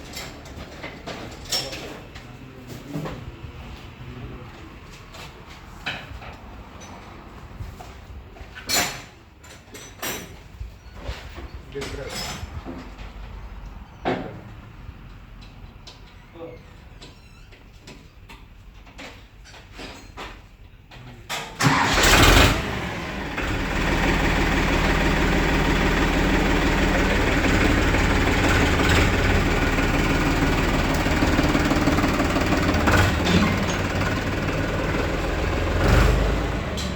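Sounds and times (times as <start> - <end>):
diesel tractor engine starting: 21.6 - 36.9.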